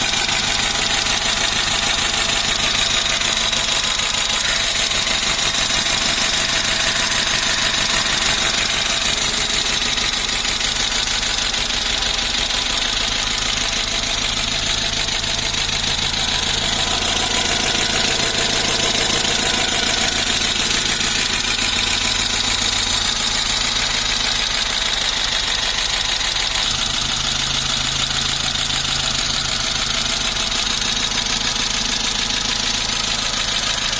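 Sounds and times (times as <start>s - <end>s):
car engine idling: 0.0s - 33.9s
high whine: 15.0s - 22.0s.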